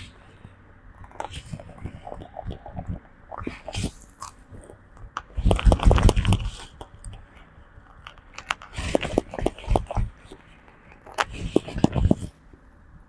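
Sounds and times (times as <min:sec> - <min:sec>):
monkey biting and chewing: 0:01.0 - 0:12.5
irregular clicks: 0:04.0 - 0:12.3.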